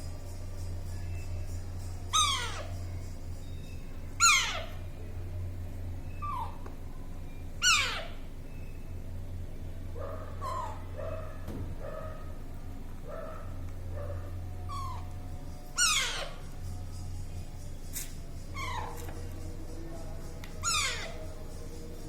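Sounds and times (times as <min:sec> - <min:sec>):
steady low hum: 0:00.0 - 0:22.0
parrot harsh calls: 0:02.1 - 0:02.7, 0:04.2 - 0:04.8, 0:07.6 - 0:08.2, 0:10.4 - 0:11.0, 0:15.8 - 0:16.4.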